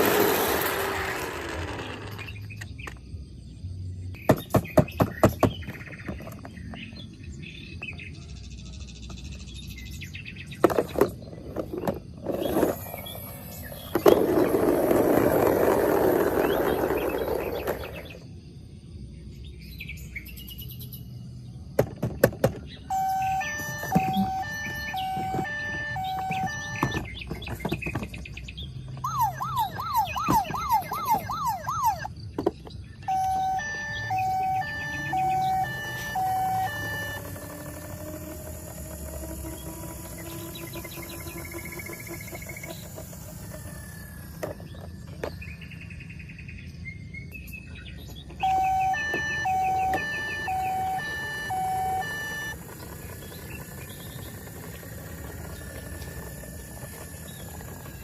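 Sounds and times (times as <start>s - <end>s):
toy electronic siren: 10.6s - 18.2s, 22.9s - 27.9s, 28.9s - 32.2s, 33.0s - 45.3s, 48.3s - 58.0s.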